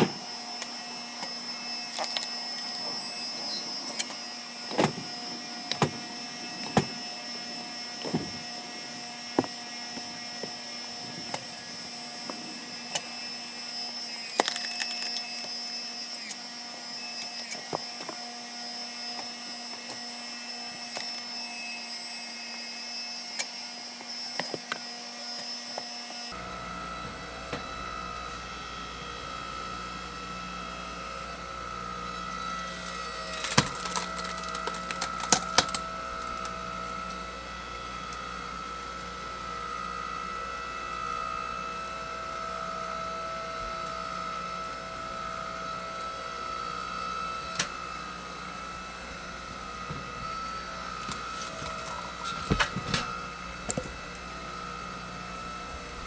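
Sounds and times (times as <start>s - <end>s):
hydraulic log splitter running: 0.0s - 56.0s
wood cracking and splintering: 32.7s - 36.6s.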